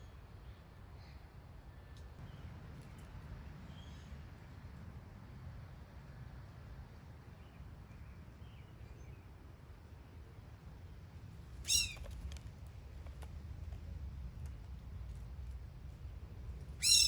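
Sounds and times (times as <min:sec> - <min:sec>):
low outdoor rumble: 0:00.0 - 0:17.0
loud harsh bird call: 0:11.7 - 0:12.0, 0:16.8 - 0:17.0
faint bird chirps: 0:11.7 - 0:12.1, 0:16.8 - 0:17.0.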